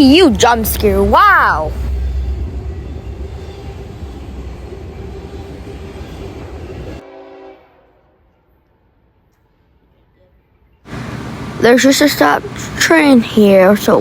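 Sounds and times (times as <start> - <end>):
freight train rumbling past: 0.0 - 8.0, 10.9 - 14.0.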